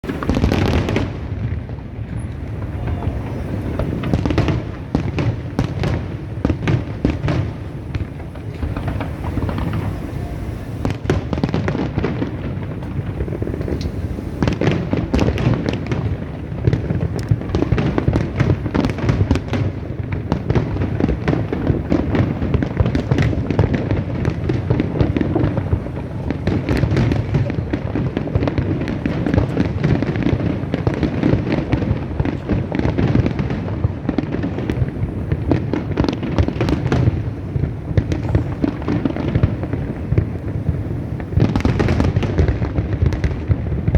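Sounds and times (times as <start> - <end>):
booming shells rumble: 0.0 - 30.8
fireworks bangs and crackles: 0.0 - 43.9.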